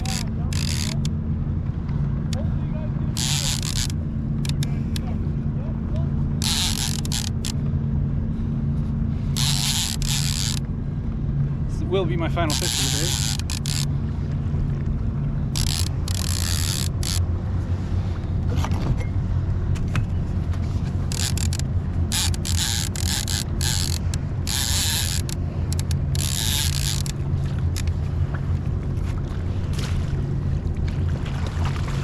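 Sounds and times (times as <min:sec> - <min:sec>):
fishing reel whirring and clicking: 0:00.0 - 0:01.2, 0:03.1 - 0:05.1, 0:06.4 - 0:07.6, 0:09.3 - 0:10.7, 0:12.3 - 0:14.0, 0:15.5 - 0:17.3, 0:21.0 - 0:28.0
low mechanical hum: 0:00.0 - 0:32.0.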